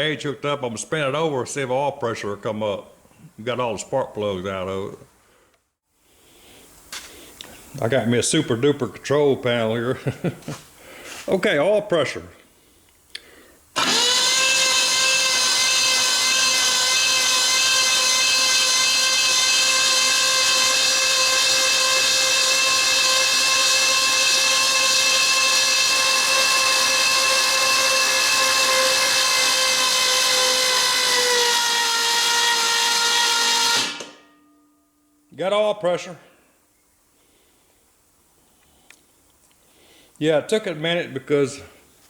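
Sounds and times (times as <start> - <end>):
starter motor cranking engine: 13.8 - 32.9.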